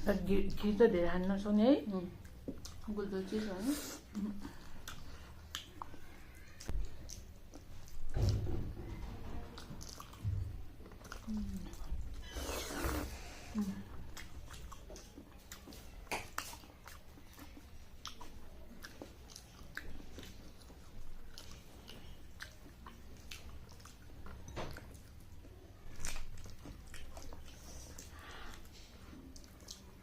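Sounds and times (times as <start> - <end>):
chewing and mouth smacks: 2.2 - 3.0, 4.1 - 12.3, 13.7 - 30.0.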